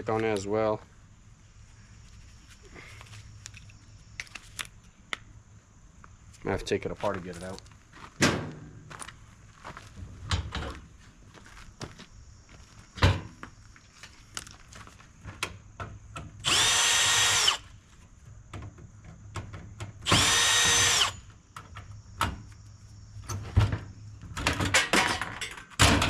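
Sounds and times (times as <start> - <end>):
power drill spinning: 16.4 - 17.7, 20.0 - 21.3.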